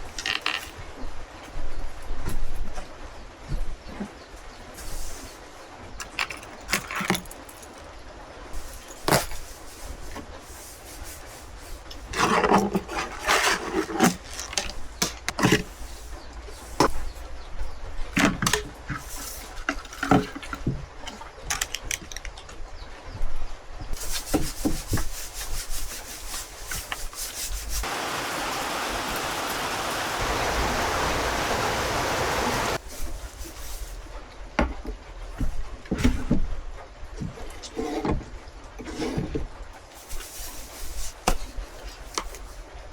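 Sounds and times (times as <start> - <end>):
rubbing and clatter: 8.6 - 17.3, 24.0 - 28.0
clicks and knocks of handling: 18.1 - 22.6
steady rushing noise: 27.8 - 32.8.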